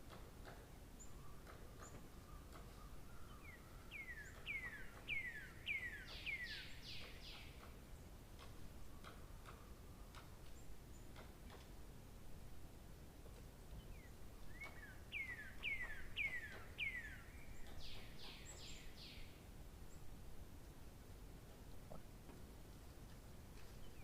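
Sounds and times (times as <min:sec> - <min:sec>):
bird singing whistled notes: 0:03.1 - 0:07.5, 0:13.9 - 0:19.4.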